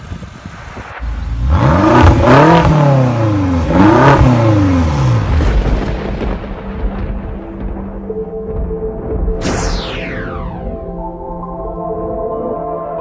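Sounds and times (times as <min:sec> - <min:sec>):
car engine revving and idling: 0:01.0 - 0:05.9.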